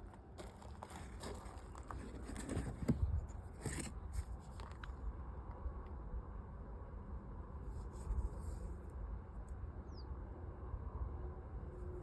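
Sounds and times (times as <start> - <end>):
handling clicks and scrapes: 1.8 - 5.0.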